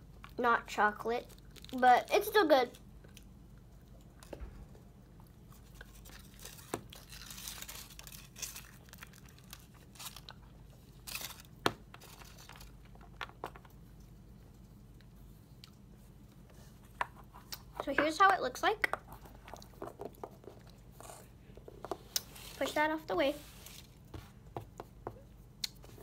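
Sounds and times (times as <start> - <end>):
wrapper crinkling and rustling: 1.2 - 2.8, 5.6 - 13.0.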